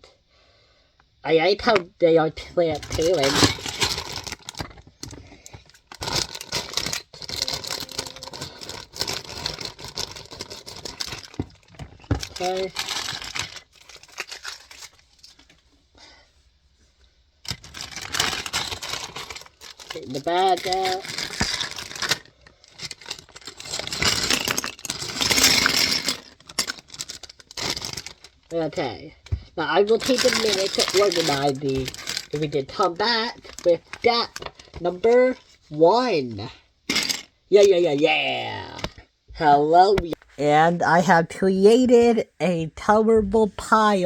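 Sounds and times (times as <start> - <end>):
plastic bags rustling: 2.7 - 15.7, 17.4 - 35.7
plastic pieces clattering onto table: 2.8 - 15.5, 17.4 - 28.5, 29.9 - 32.5.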